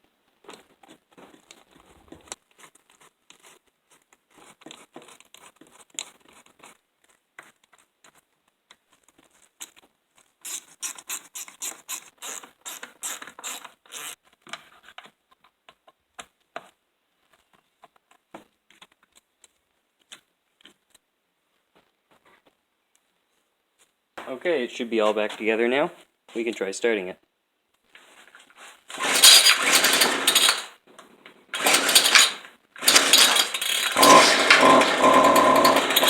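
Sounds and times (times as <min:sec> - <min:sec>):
small clicks and scrapes of parts: 0:00.5 - 0:21.0, 0:27.7 - 0:36.0
rapid clicking: 0:29.0 - 0:30.7, 0:31.6 - 0:36.0.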